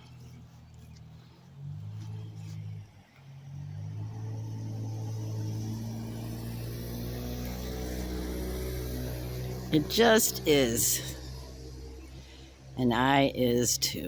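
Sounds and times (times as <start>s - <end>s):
vehicle engine drone: 0.0s - 14.0s.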